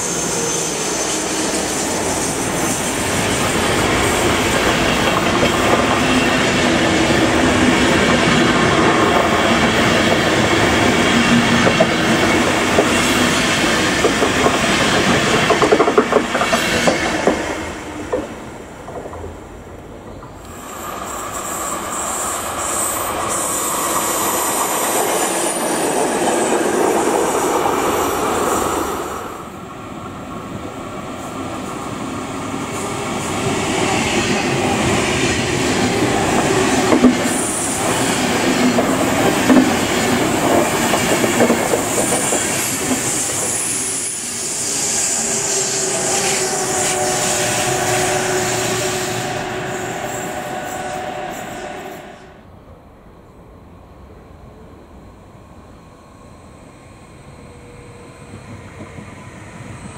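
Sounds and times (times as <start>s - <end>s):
train rolling noise: 0.0s - 59.9s.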